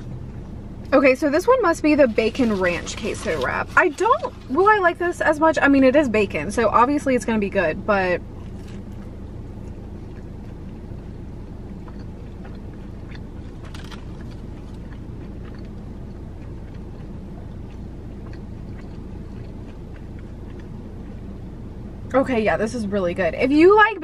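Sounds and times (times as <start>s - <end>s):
car cabin engine hum: 0.0s - 24.0s
person chewing mouth clicks: 8.4s - 21.3s.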